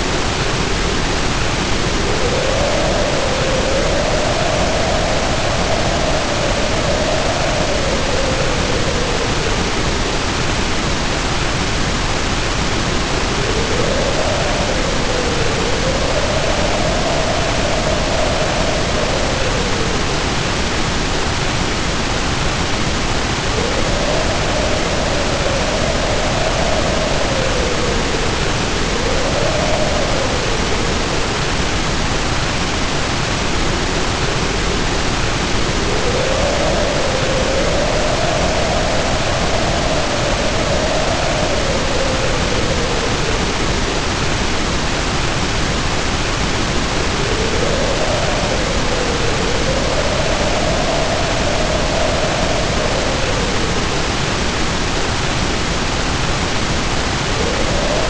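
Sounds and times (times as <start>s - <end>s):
heavy rain pouring: 0.0s - 58.0s
wind howling: 0.0s - 58.0s.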